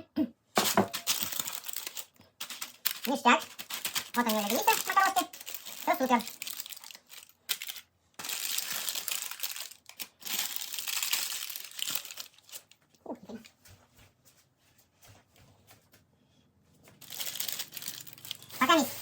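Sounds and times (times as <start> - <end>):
packaging crinkling and rustling: 0.6 - 13.0, 16.9 - 19.0.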